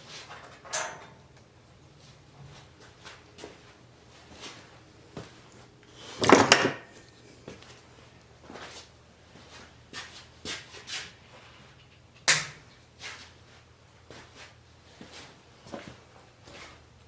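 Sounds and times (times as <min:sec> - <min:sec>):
objects knocking: 0:06.1 - 0:06.9.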